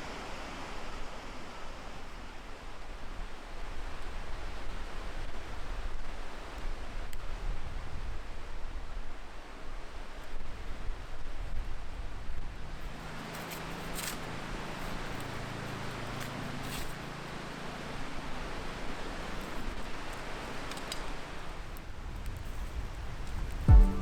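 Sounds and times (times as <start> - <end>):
fire crackles: 19.3 - 24.0.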